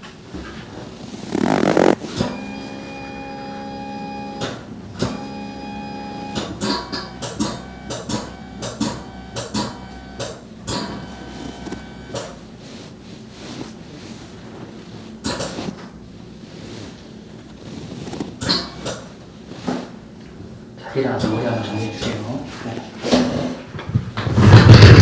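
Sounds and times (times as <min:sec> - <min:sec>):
machine motor hum: 0:01.3 - 0:12.4.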